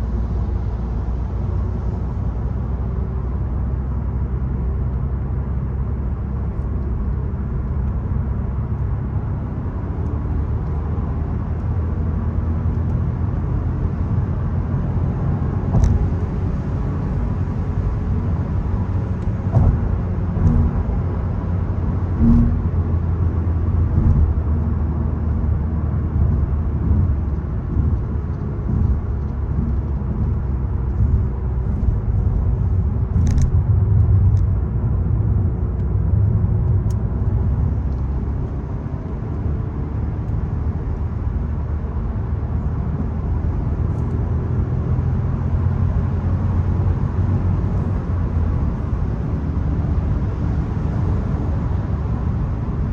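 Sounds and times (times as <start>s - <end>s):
car engine rumble: 0.0s - 52.9s
road noise: 0.0s - 52.9s.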